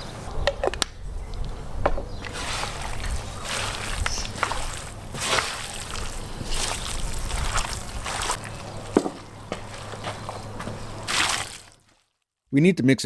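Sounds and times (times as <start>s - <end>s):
meat squelching by hand: 2.2s - 12.0s.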